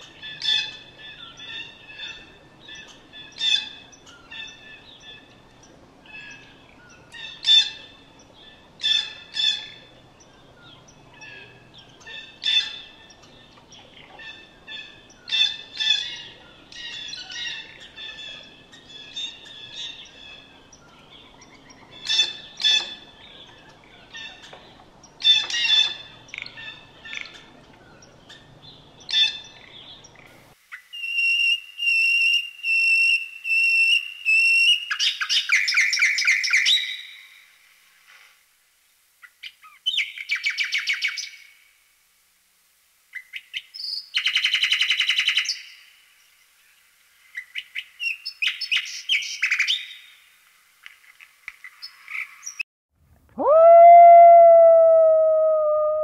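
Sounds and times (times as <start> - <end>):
steady background noise: 0.0 - 30.9.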